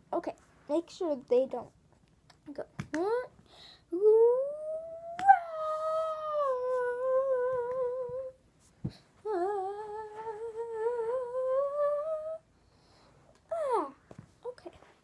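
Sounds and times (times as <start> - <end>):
person humming: 3.9 - 8.4, 9.2 - 12.4.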